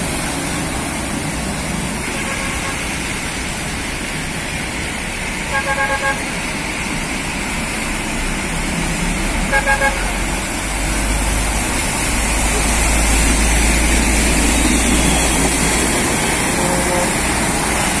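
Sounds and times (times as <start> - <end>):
road traffic and engine noise: 0.0 - 18.0
vehicle horn tooting: 5.5 - 6.3, 9.5 - 10.2, 16.4 - 17.4.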